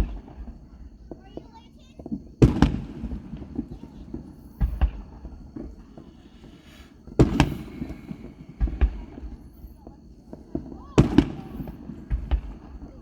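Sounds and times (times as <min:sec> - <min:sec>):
fireworks bursting with rumbling echo: 0:00.0 - 0:13.0.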